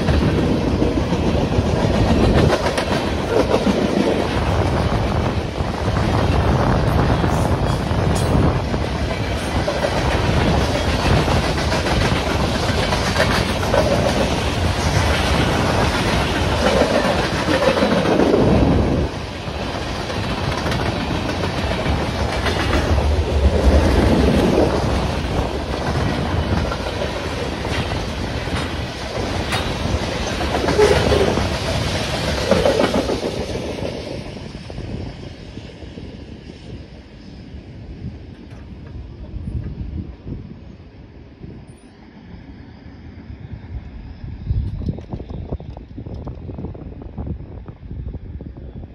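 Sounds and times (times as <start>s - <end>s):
freight train wheels clattering: 0.0s - 34.5s.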